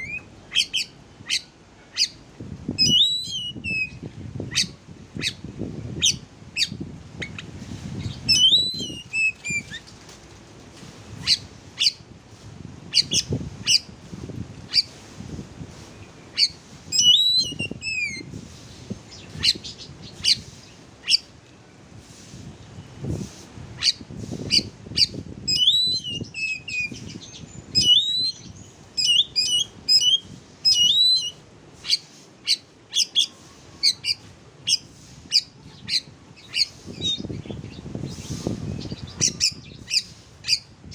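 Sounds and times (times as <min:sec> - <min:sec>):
bird song with chip notes and whistles: 0:02.8 - 0:05.4, 0:08.0 - 0:09.8, 0:16.4 - 0:18.3, 0:23.8 - 0:40.7.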